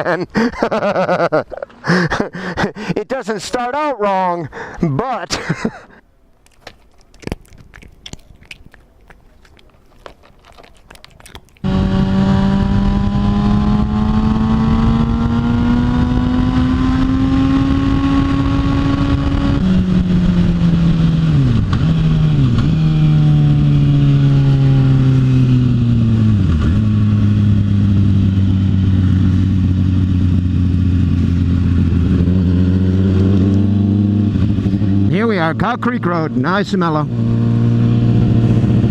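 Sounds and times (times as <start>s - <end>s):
motorcycle engine revving: 11.6s - 38.9s.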